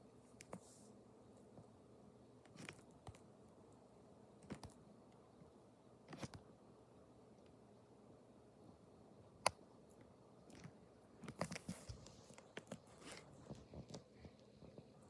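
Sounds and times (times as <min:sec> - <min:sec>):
ceiling fan hum: 0:00.0 - 0:15.0
clicks and rustles: 0:10.5 - 0:15.0.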